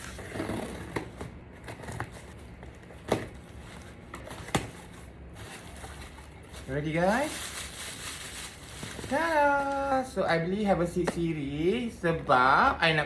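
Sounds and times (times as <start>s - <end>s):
packaging crinkling and tearing: 5.5s - 10.0s.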